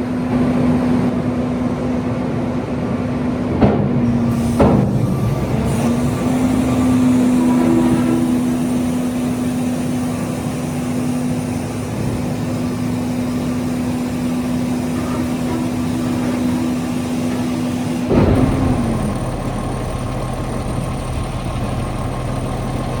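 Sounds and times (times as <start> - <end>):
diesel engine whining: 0.0 - 23.0
diesel engine idling: 4.0 - 23.0
engine knock: 18.1 - 23.0.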